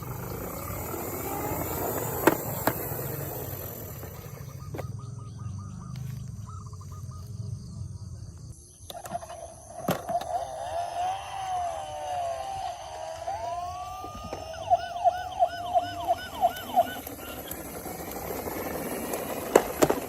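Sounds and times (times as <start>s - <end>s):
rattling run of blips: 8.9s - 20.0s
toy electronic sound effects: 9.0s - 18.0s
wavering siren-like tone: 9.7s - 18.2s.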